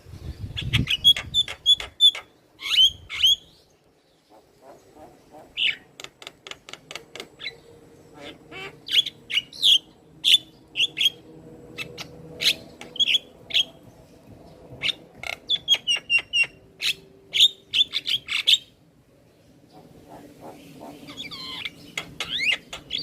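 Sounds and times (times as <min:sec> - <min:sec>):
bird calling with clicks and chirps: 0:00.8 - 0:03.5, 0:21.1 - 0:23.0.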